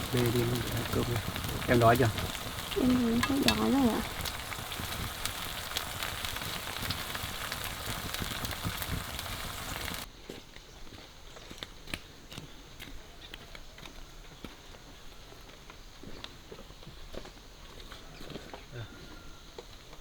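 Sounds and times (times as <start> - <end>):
food sizzling in a pan: 0.0 - 10.1.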